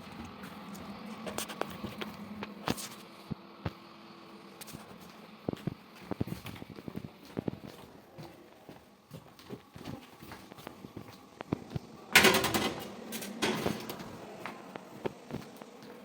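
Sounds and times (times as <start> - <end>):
footsteps on hard floor: 4.6 - 11.9, 14.0 - 16.0.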